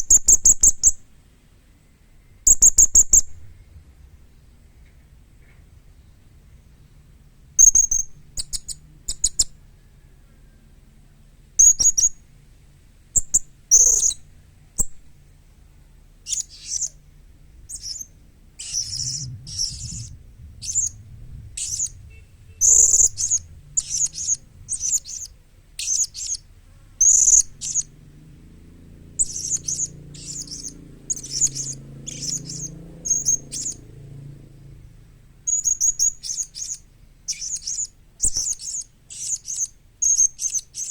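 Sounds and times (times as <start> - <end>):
parrot shrill chirps: 16.3 - 17.0, 17.7 - 21.0, 21.6 - 22.0, 22.6 - 26.4, 27.0 - 27.9, 29.2 - 33.8, 35.5 - 40.9.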